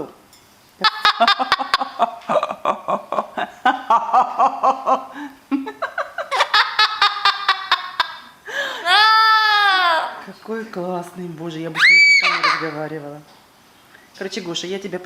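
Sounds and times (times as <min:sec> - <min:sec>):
laughter in rapid bursts: 0:00.8 - 0:09.3.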